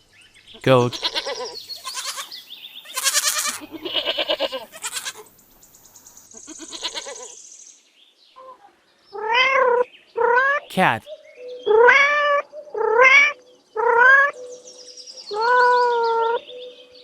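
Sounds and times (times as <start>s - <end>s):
goats bleating: 0.8s - 2.3s, 2.9s - 5.2s.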